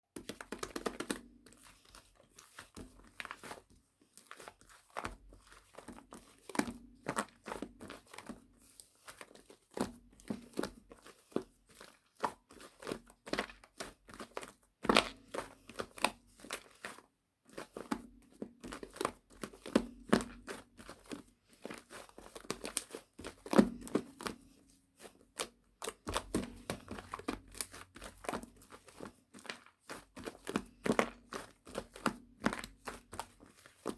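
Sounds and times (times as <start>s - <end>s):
crinkling and rustling: 0.2s - 9.7s, 18.4s - 33.9s.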